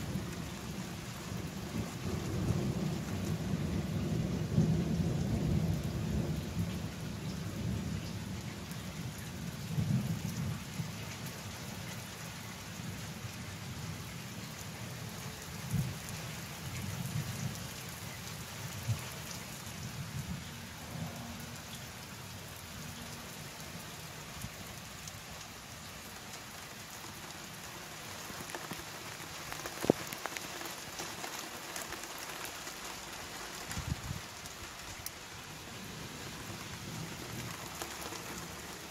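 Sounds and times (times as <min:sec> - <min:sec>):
low thunder rumbling: 0:00.0 - 0:10.9
steady rain: 0:00.0 - 0:38.9.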